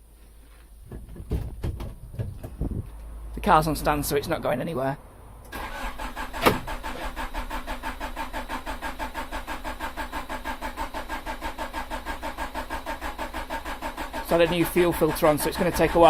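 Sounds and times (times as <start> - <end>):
starter motor cranking engine: 5.5 - 16.0.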